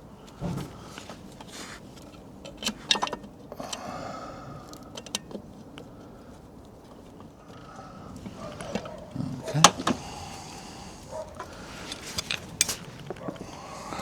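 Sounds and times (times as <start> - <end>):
metal tools clinking: 11.4 - 13.4.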